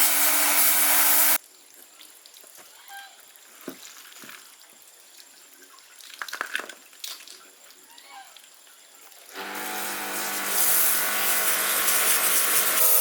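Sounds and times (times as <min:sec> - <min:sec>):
loud hissing spray: 0:00.0 - 0:01.4, 0:09.4 - 0:13.0
steady motor hum: 0:09.4 - 0:13.0.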